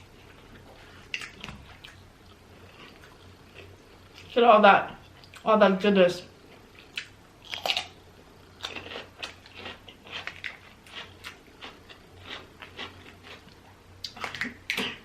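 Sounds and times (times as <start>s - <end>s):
chewing: 0.2s - 4.4s, 8.6s - 14.8s.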